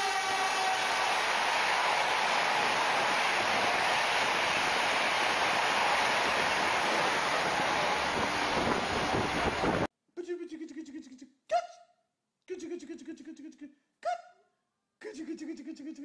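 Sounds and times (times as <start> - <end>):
train passing at high speed: 0.0 - 9.9.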